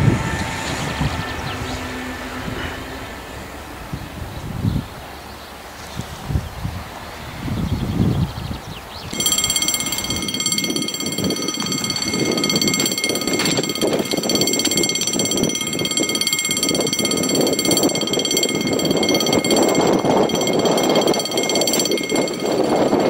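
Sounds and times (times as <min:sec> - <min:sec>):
train high-pitched whine: 0:00.0 - 0:04.2.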